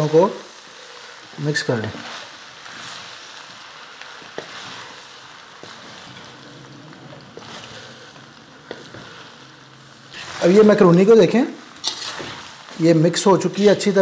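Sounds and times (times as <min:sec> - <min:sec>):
food sizzling in a wok: 0:00.0 - 0:14.0
spatula knocking and scraping a pan: 0:04.2 - 0:05.0, 0:07.0 - 0:09.4, 0:11.8 - 0:13.0.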